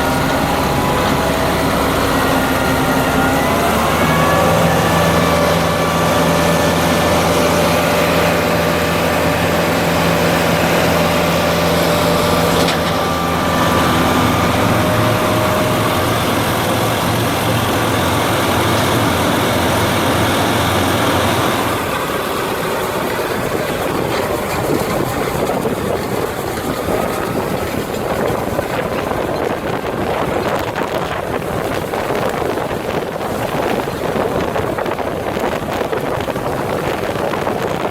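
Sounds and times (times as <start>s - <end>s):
tractor diesel engine running: 0.0s - 37.9s.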